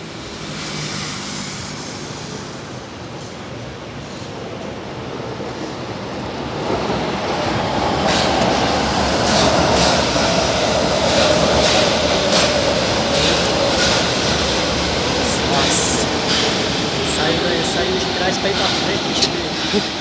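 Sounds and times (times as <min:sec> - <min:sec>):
train running with whine: 0:00.0 - 0:20.0
train wheel clicks: 0:08.0 - 0:20.0.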